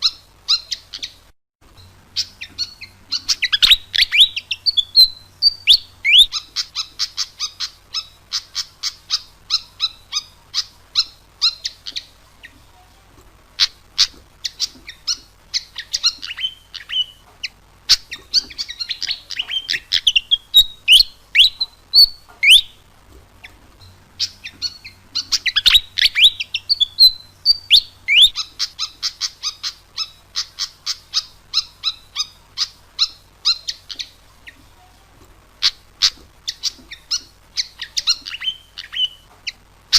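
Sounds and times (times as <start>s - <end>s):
bird singing high squeaky chirps: 0.0s - 12.6s, 13.6s - 22.8s, 23.4s - 34.6s, 35.6s - 39.6s.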